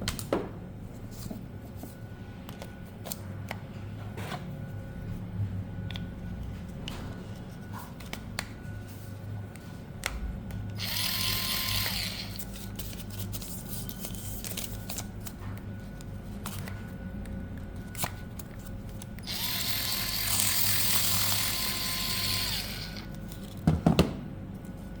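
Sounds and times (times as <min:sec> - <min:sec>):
cordless scissors motor running: 0:10.7 - 0:12.7, 0:19.2 - 0:23.5.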